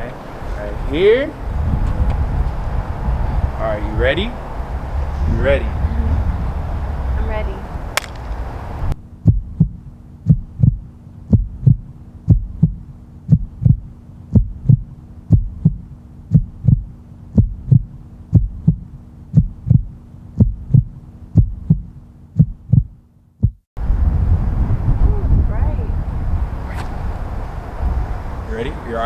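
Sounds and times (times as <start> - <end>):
faint steady hum: 0.0 - 22.2, 23.8 - 29.0
heartbeat thumps: 9.2 - 23.7.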